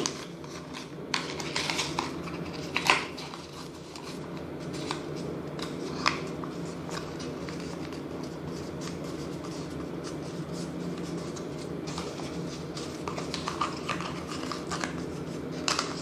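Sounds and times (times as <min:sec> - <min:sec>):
paper rustling and crinkling: 0:00.0 - 0:16.0.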